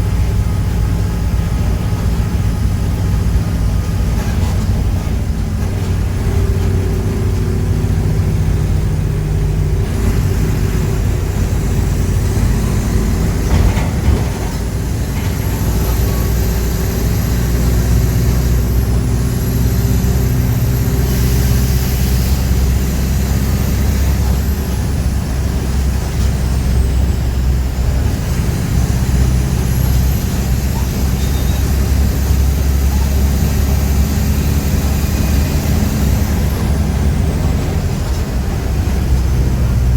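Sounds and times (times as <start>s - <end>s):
diesel bus engine running: 0.0s - 39.9s
faint high whistle: 31.1s - 31.9s.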